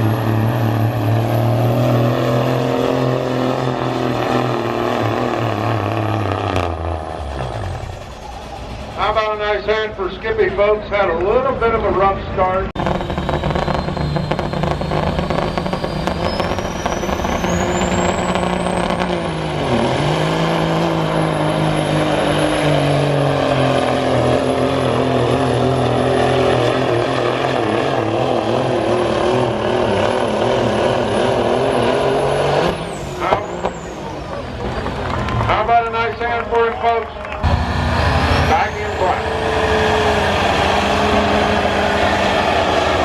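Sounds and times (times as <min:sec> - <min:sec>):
diesel truck engine pulling hard: 0:00.0 - 0:43.0
turbo whistle: 0:12.8 - 0:19.1.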